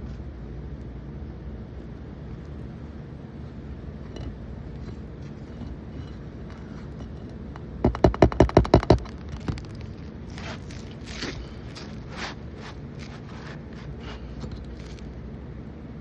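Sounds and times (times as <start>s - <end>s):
hammer rapping: 5.7s - 9.8s.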